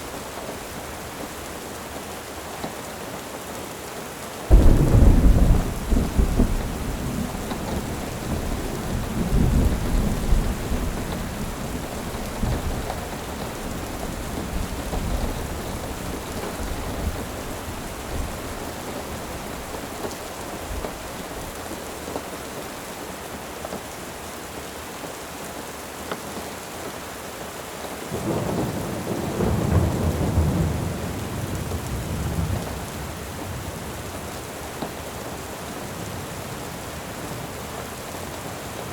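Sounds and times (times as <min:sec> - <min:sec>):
steady rain: 0:00.0 - 0:38.9
rolling thunder: 0:04.5 - 0:19.7, 0:28.2 - 0:33.7.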